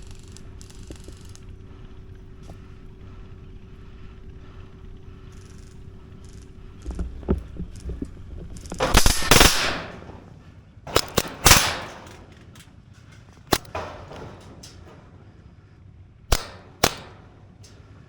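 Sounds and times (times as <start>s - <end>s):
airsoft guns firing: 8.5s - 12.6s, 13.5s - 14.6s, 16.3s - 17.6s.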